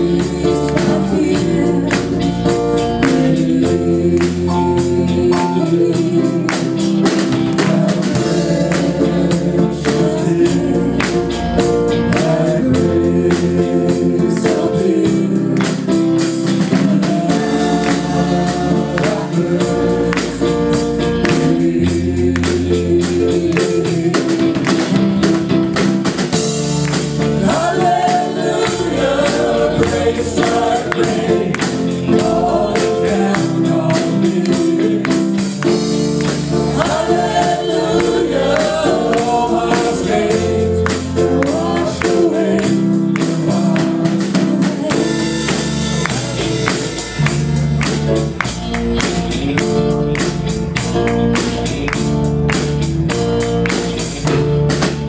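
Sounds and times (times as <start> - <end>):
steady percussion beat: 0.0 - 55.0
worship song with singers and band: 0.0 - 55.0.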